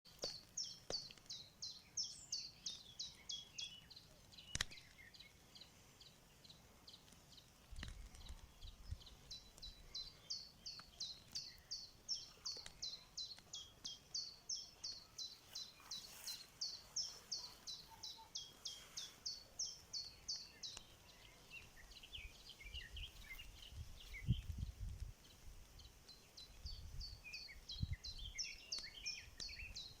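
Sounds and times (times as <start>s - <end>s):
small bird chirping: 0.1s - 30.0s
faint click: 4.3s - 5.2s.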